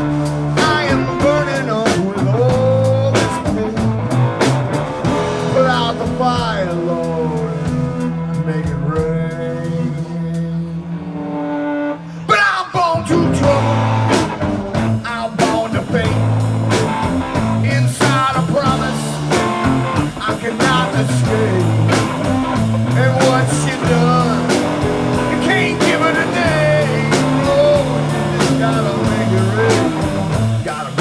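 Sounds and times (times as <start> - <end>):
blues-rock band playing: 0.0 - 31.0
lead guitar with bent notes: 0.0 - 31.0.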